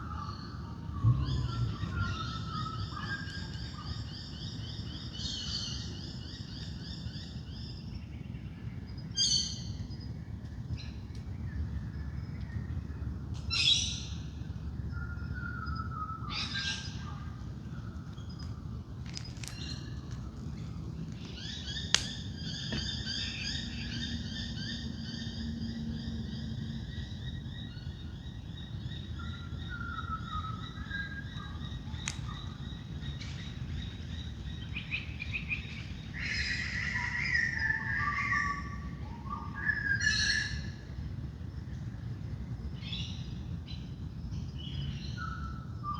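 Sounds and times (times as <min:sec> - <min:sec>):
falling bird calls: 0:00.0 - 0:06.7, 0:16.1 - 0:25.4
low background rumble: 0:00.0 - 0:45.9.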